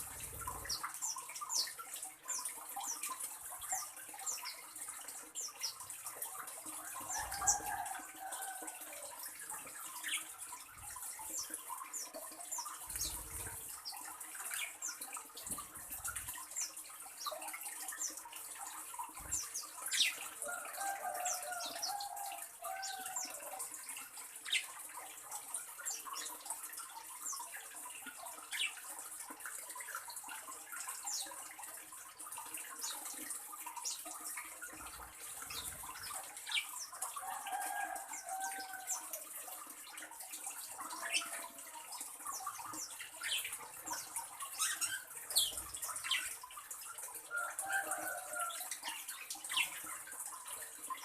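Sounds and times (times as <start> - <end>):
small birds chirping: 0.0 - 23.7, 24.3 - 28.9, 32.4 - 51.0.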